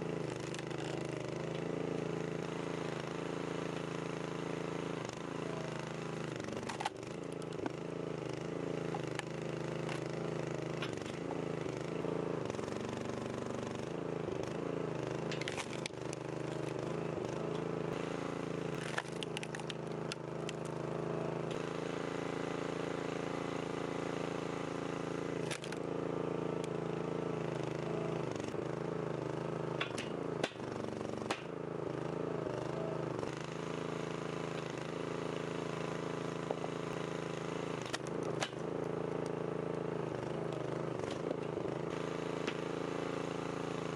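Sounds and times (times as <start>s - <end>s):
small engine running: 0.0s - 43.9s
sharp cracks and knocks: 6.6s - 7.8s, 10.8s - 11.2s, 15.3s - 16.8s, 18.7s - 20.7s, 25.4s - 25.8s, 29.8s - 31.6s, 37.8s - 38.7s.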